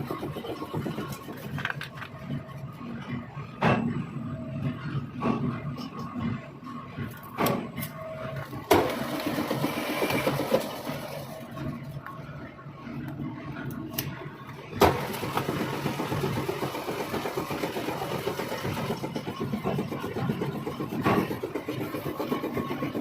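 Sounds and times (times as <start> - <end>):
machine pulsing: 0.0 - 23.0.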